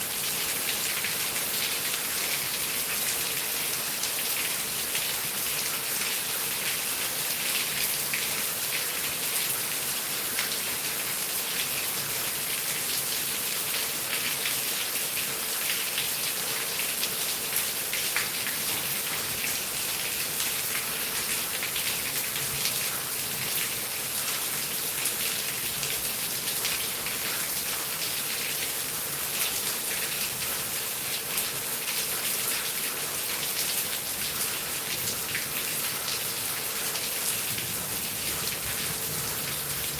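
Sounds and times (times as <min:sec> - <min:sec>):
heavy rain falling: 0:18.0 - 0:39.9.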